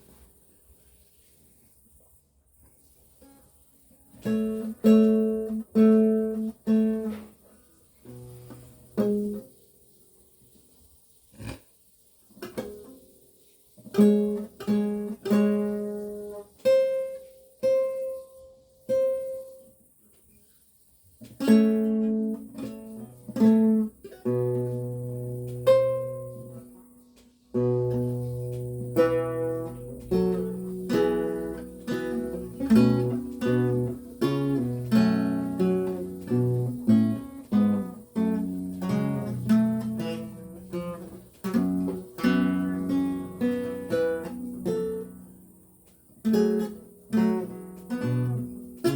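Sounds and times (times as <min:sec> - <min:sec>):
solo lute playing: 0:27.6 - 0:45.2.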